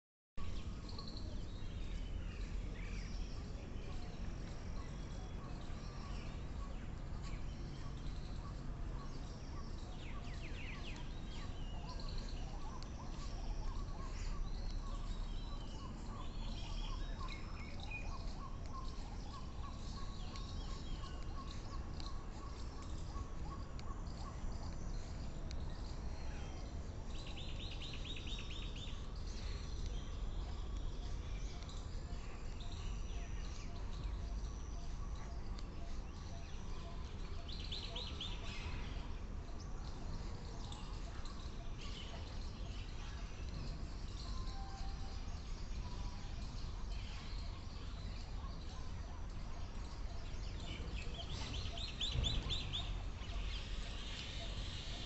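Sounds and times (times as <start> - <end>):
birds chirping: 0.5 - 55.0
steady low rumble: 0.6 - 37.7.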